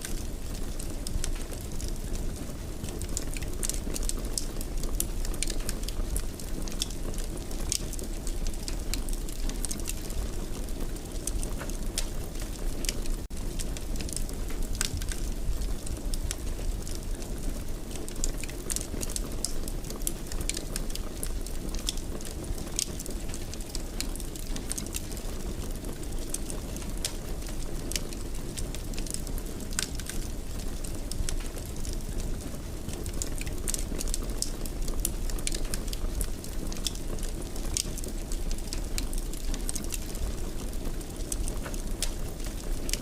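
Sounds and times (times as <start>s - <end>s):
low rumble of flames: 0.0s - 43.0s
wood fire crackling and popping: 0.0s - 43.0s.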